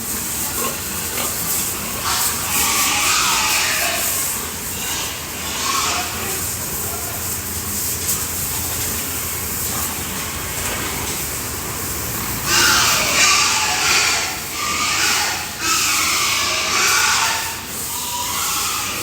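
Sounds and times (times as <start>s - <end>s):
water spraying from hose: 0.0s - 19.0s
pig calls: 0.4s - 7.2s, 12.4s - 19.0s.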